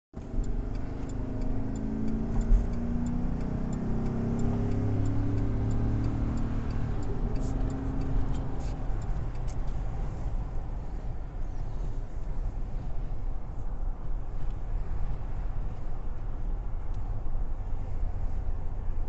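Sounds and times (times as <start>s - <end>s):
faint regular ticking: 0.2s - 9.9s.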